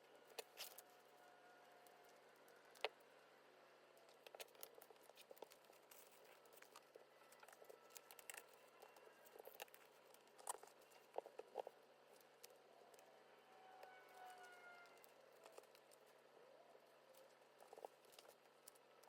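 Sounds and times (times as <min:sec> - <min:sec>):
paper and sticker sheets crinkling: 0:04.0 - 0:13.0, 0:13.8 - 0:16.2.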